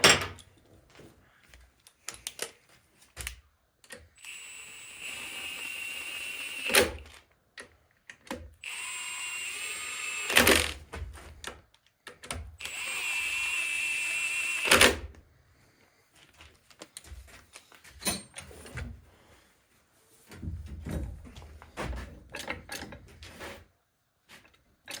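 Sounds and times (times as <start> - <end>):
impact wrench whining and hammering: 4.2 - 7.2, 8.6 - 11.4.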